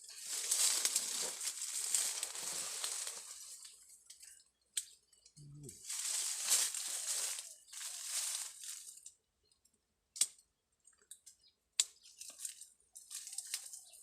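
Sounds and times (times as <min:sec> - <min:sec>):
rustling: 0:00.0 - 0:03.9, 0:05.7 - 0:09.0.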